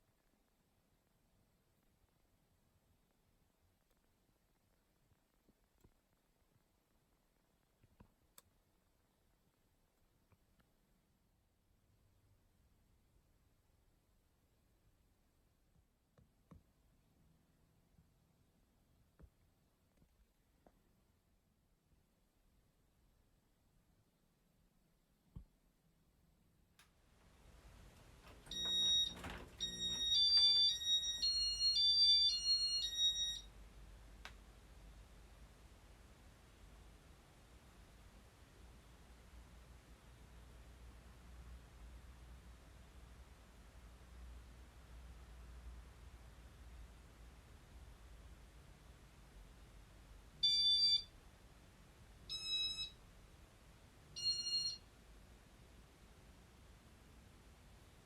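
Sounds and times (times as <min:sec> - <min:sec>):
click: 0:07.8 - 0:08.5, 0:26.8 - 0:27.0
electronic beep tones: 0:28.5 - 0:33.5.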